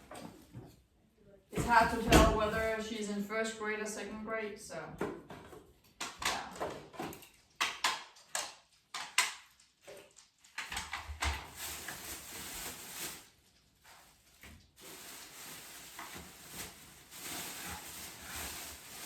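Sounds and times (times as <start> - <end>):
objects knocking and clattering: 5.0 - 11.7
rustling and scraping: 10.6 - 19.0.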